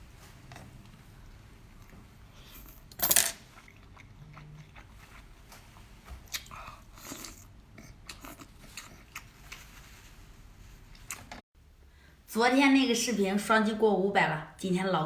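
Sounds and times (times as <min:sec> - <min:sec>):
person chewing with crunches: 0:03.4 - 0:10.0.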